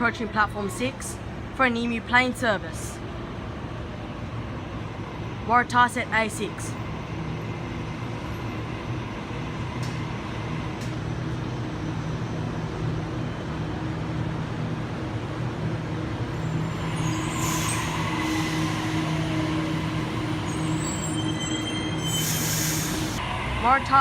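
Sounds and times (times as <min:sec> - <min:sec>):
train electrical hum: 0:00.0 - 0:24.0
air hiss: 0:22.1 - 0:23.2.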